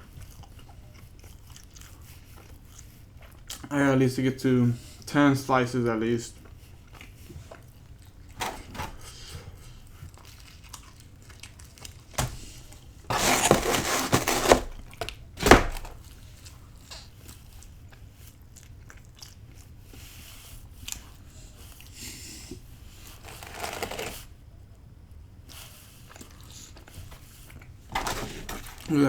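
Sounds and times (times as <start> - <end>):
person chewing: 0.0 - 3.7, 6.3 - 8.3, 9.2 - 15.2, 16.0 - 20.2, 25.5 - 27.8.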